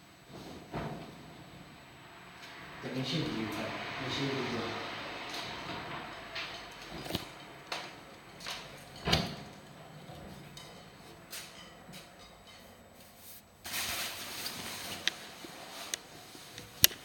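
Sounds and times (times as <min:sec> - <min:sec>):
rushing noise: 0:02.0 - 0:06.1.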